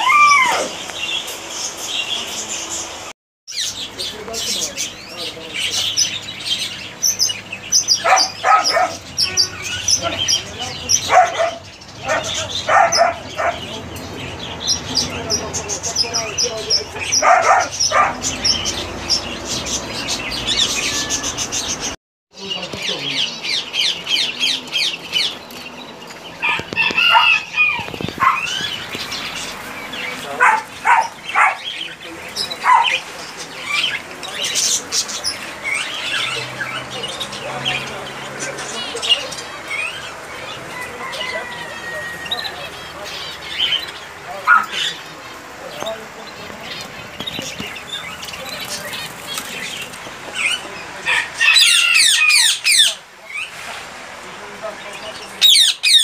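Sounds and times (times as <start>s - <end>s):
harsh bird squawks: 0.0s - 0.9s, 5.9s - 13.7s, 50.4s - 53.5s, 55.4s - 56.0s
birds calling: 0.0s - 56.0s
birds chirping: 0.0s - 56.0s.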